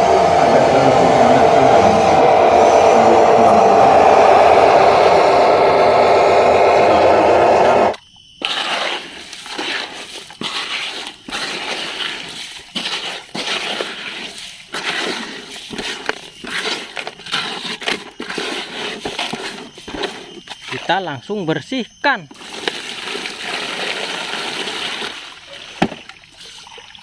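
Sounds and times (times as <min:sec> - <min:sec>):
loud mechanical hum: 0:00.0 - 0:08.0.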